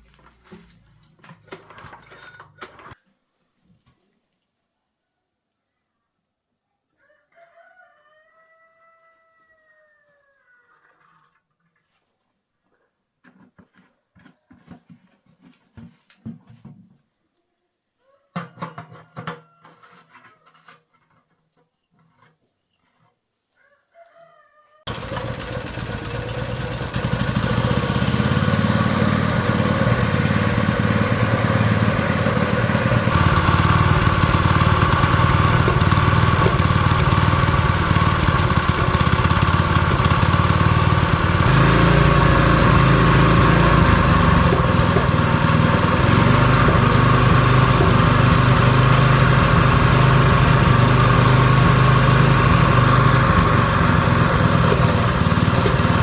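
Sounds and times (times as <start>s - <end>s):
small engine running: 24.9s - 56.0s.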